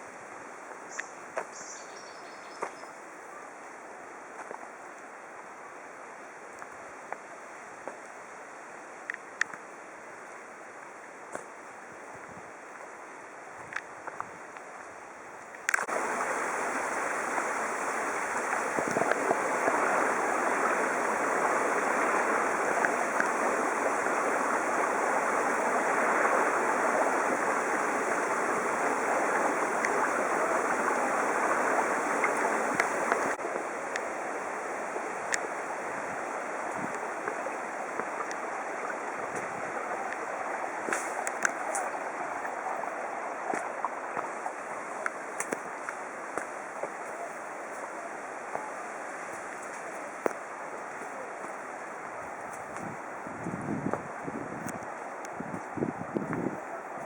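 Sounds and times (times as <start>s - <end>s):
stream water rushing: 2.6s - 57.0s.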